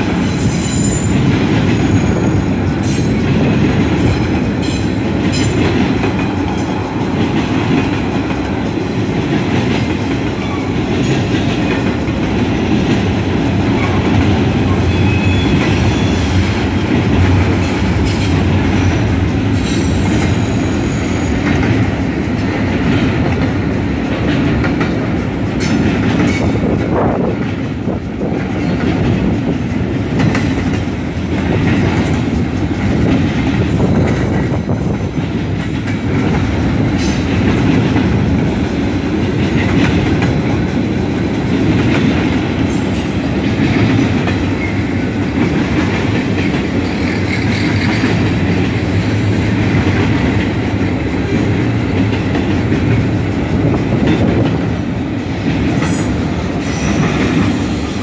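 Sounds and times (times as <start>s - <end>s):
freight train rumbling past: 0.0s - 58.0s
high-pitched wheel squeal: 14.7s - 16.4s.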